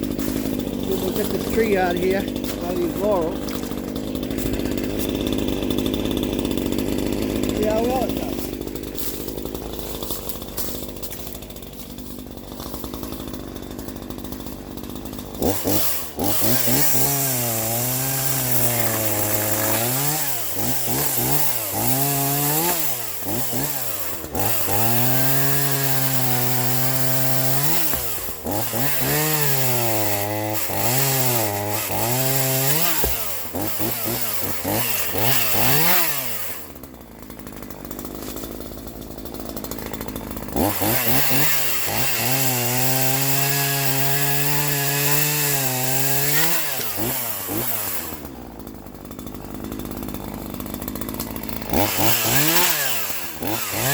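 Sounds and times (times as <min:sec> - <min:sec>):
chainsaw idling and revving: 0:00.0 - 0:53.9.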